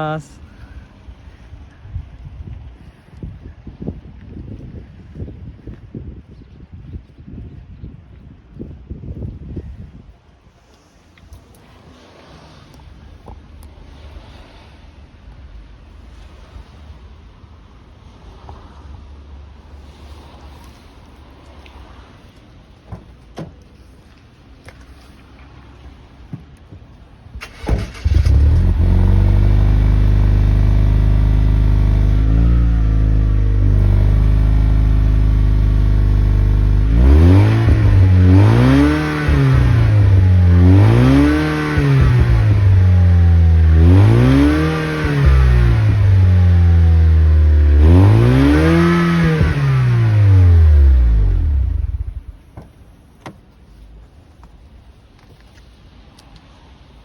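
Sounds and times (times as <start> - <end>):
car engine starting and idling: 27.0 - 53.8
car engine revving: 27.4 - 52.4.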